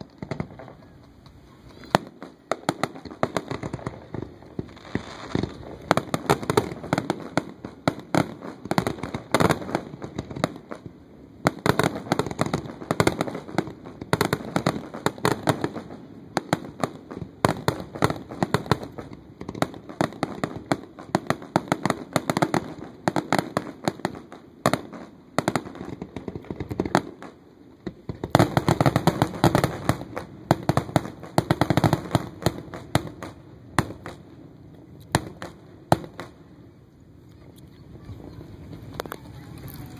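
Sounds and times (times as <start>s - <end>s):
fireworks popping and crackling: 0.0s - 36.5s, 37.6s - 39.9s.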